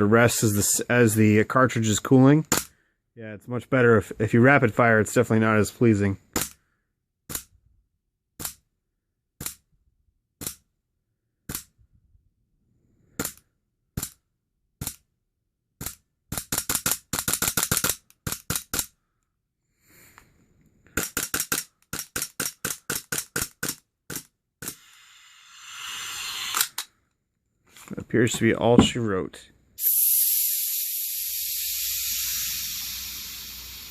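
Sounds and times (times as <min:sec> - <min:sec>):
hiss of escaping gas: 0:24.6 - 0:26.9, 0:29.8 - 0:33.9.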